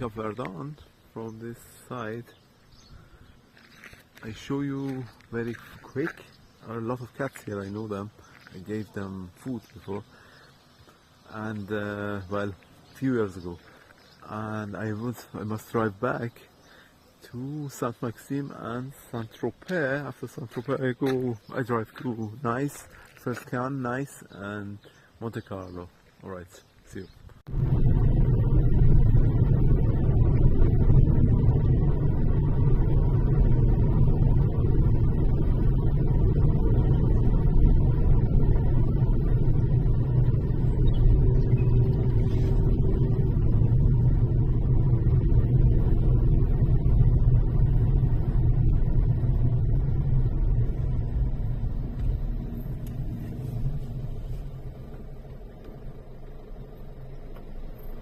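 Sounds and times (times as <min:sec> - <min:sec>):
car engine and road noise: 0:26.1 - 0:58.0.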